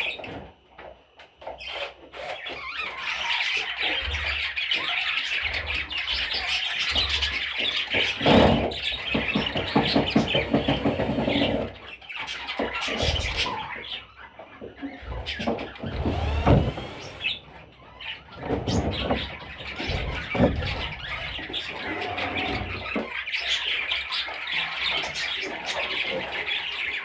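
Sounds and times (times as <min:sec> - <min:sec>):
budgerigars chattering and warbling: 0:01.4 - 0:27.0
thumps and knocks: 0:15.1 - 0:23.1.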